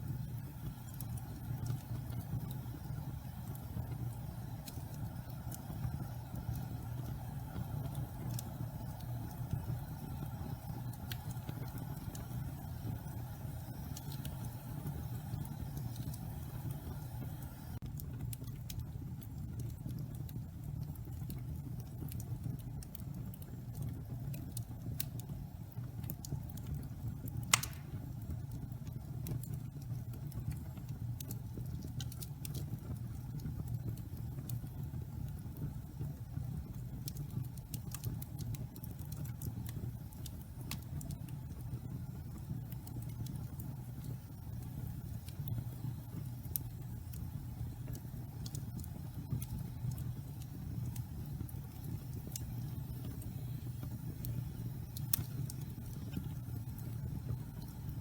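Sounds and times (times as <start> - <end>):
fire crackles: 0.0 - 58.0
fire rumbling: 0.0 - 58.0
loud pop from fire: 27.5 - 28.1.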